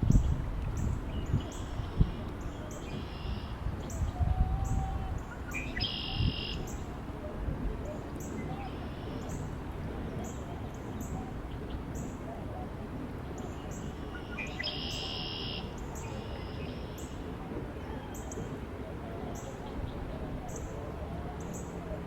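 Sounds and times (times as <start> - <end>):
wind: 0.0 - 22.0
bird call: 1.4 - 6.9, 13.6 - 17.2.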